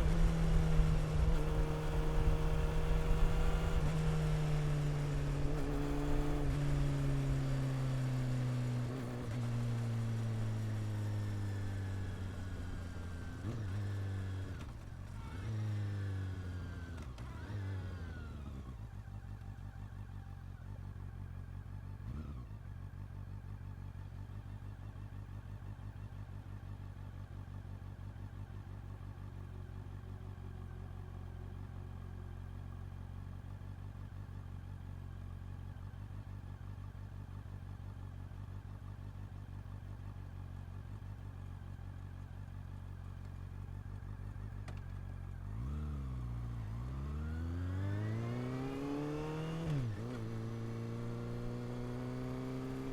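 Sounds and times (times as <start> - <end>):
motorcycle engine idling and revving: 0.0 - 52.9.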